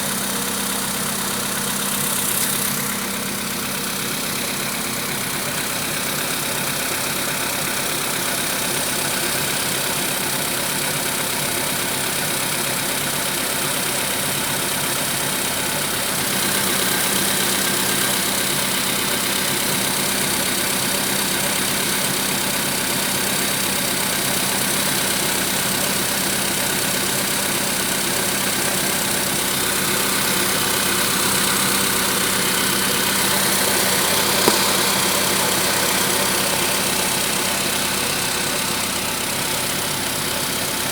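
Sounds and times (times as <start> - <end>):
car engine running with a knock: 0.0 - 40.9
sharp click: 34.2 - 35.2.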